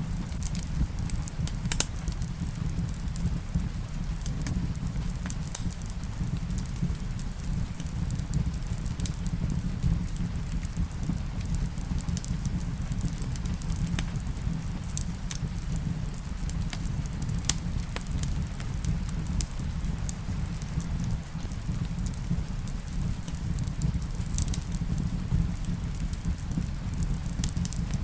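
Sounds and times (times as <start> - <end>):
rain: 0.0 - 28.0
wood fire crackling and popping: 0.0 - 28.0.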